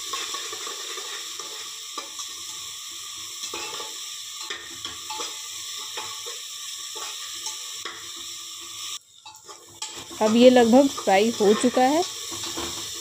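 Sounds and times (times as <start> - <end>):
paste sizzling in oil: 0.0 - 13.0
metal spatula scraping a pot: 3.4 - 8.1, 9.2 - 13.0.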